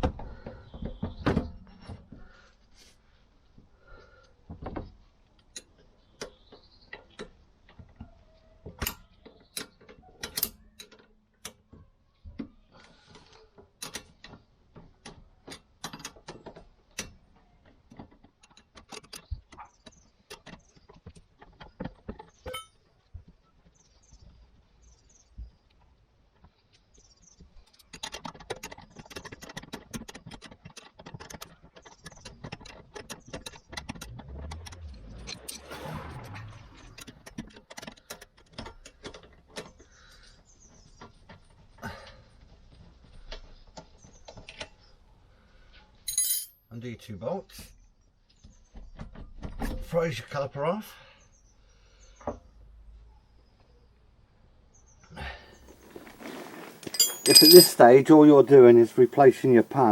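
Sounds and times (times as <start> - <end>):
metal tools clinking on metal: 22.5 - 22.8, 46.1 - 46.6, 55.9 - 59.9.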